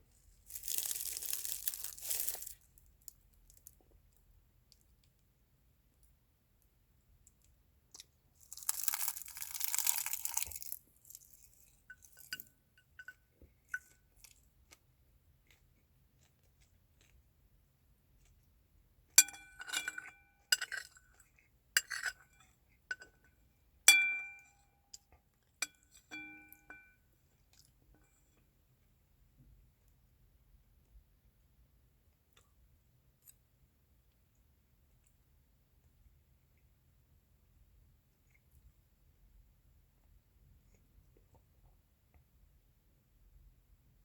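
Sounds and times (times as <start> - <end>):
rustling crunch of eating: 0.0 - 3.8, 7.9 - 12.5, 13.7 - 17.5.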